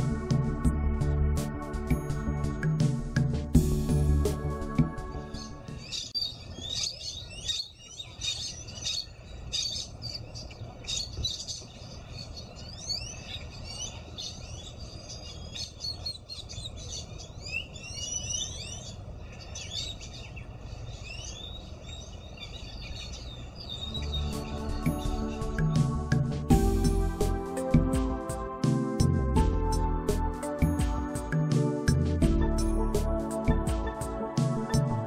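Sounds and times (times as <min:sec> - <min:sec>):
steady low rumble: 0:00.0 - 0:05.9, 0:23.4 - 0:35.0
birds chirping and whistling: 0:03.8 - 0:27.7.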